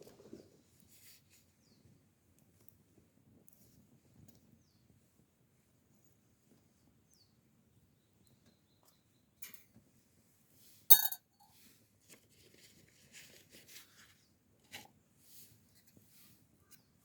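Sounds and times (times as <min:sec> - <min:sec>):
sharp clink of hard object: 0:10.9 - 0:11.2.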